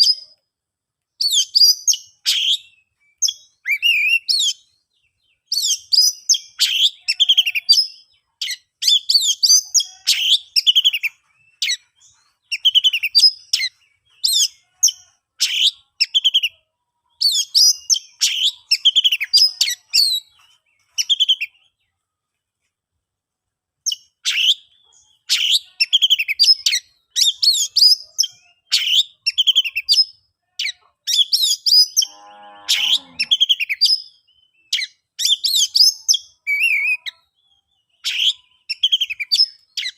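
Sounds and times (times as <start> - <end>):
magpie-robin singing: 1.2 - 21.9, 23.8 - 32.1, 32.8 - 39.9.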